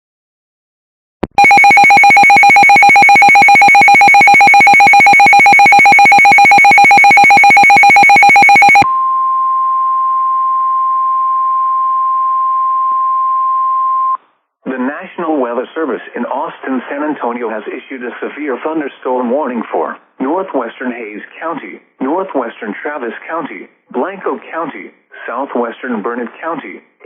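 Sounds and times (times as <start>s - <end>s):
rapidly pulsing alarm beep: 1.4s - 8.8s
steady single-pitch alarm tone: 1.4s - 14.2s.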